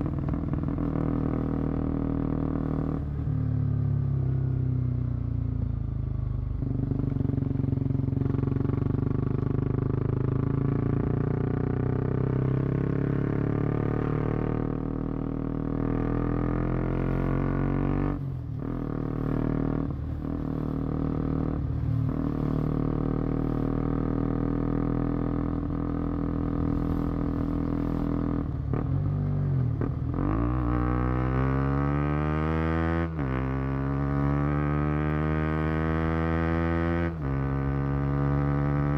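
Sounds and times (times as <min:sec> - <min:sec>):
motorcycle exhaust revving: 0:06.6 - 0:38.9.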